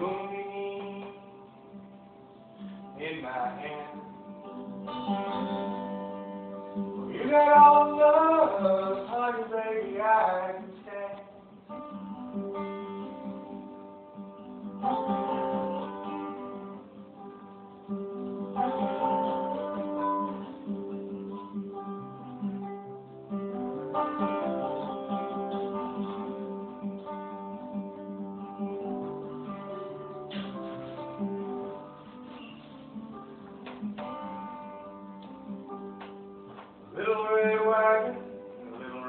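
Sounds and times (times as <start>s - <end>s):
person singing: 0.0s - 1.8s, 3.0s - 4.2s, 7.1s - 11.4s, 36.9s - 39.0s
acoustic guitar strumming: 0.0s - 39.0s.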